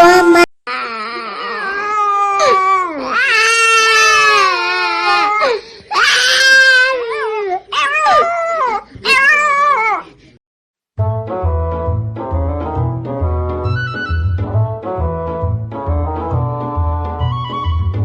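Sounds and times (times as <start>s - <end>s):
puppy howling and crying: 0.0s - 10.1s.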